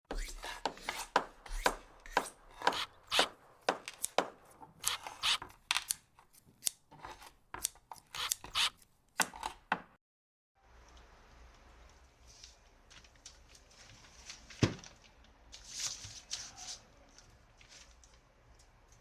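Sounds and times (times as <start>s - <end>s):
short scraping strokes: 0.1s - 9.6s.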